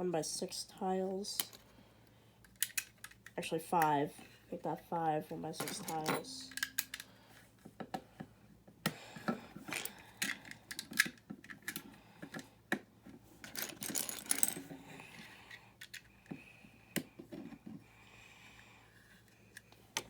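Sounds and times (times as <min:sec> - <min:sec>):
plastic bricks clicking and clattering: 0:13.4 - 0:14.7.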